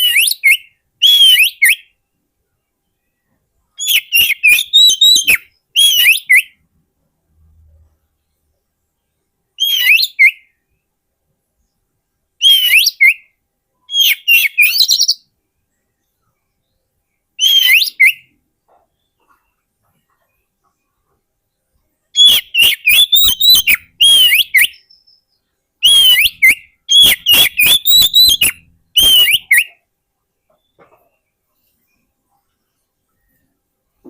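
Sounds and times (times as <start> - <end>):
bird singing whistled notes: 0.0 - 2.0, 2.9 - 6.6, 9.6 - 10.8, 12.4 - 15.3, 16.1 - 18.4, 22.1 - 29.9.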